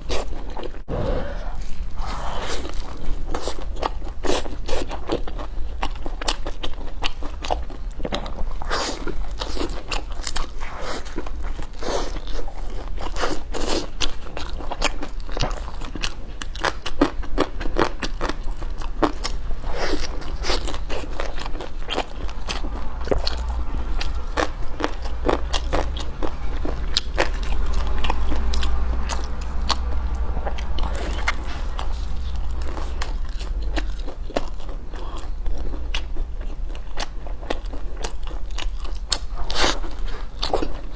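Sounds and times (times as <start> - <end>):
crunchy biting and chewing: 0.0 - 40.9
low steady hum: 0.8 - 3.7, 19.4 - 39.4.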